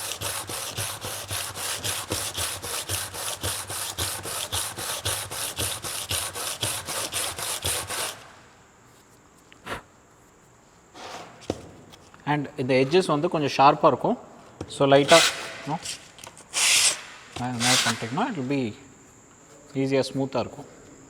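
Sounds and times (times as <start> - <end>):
sanding on abrasive paper: 0.0 - 8.3, 15.0 - 18.2.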